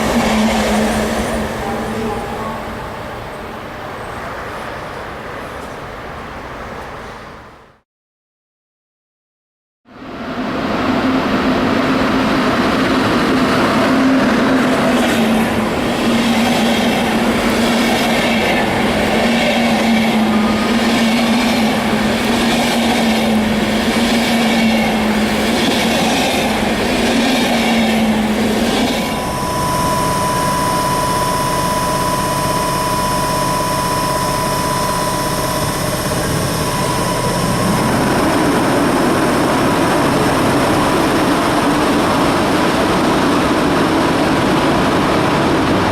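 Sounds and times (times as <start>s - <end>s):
electric train high whine: 0.0s - 4.0s, 10.0s - 45.9s.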